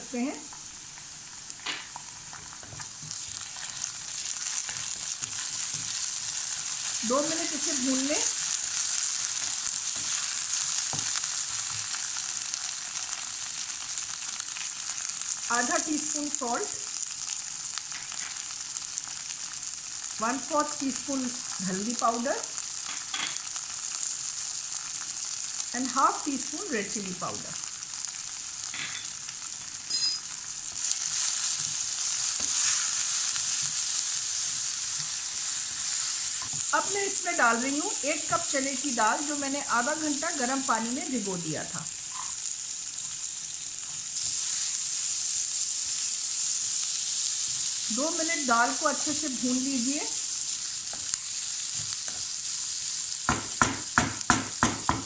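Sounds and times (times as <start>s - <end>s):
onions sizzling in hot oil: 0.0s - 55.0s
spatula stirring and scraping: 2.3s - 7.0s, 30.8s - 36.7s
wooden spatula knocking pan: 53.3s - 55.0s.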